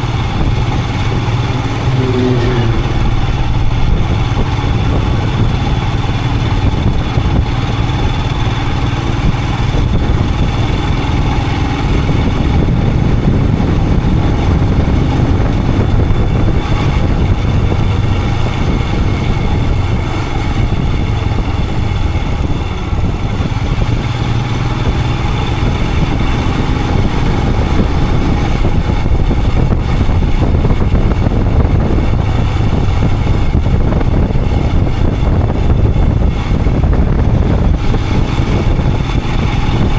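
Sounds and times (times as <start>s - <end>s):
motorcycle engine cruising: 0.0s - 39.9s
road noise: 0.0s - 39.9s
wind noise: 0.0s - 39.9s.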